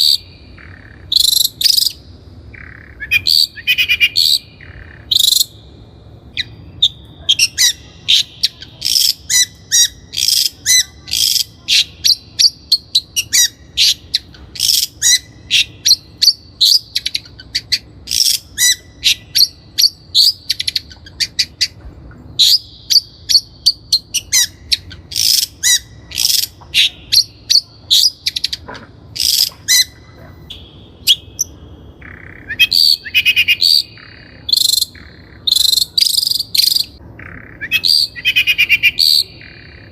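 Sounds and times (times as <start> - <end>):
bird singing chirps and whistles: 0.0 - 5.7, 6.3 - 21.8, 29.2 - 39.9.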